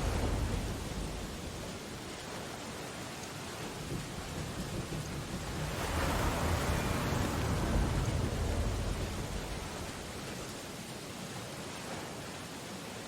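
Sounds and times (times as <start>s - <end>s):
deep rumble: 0.0s - 2.1s
rain on window glass: 0.0s - 11.0s.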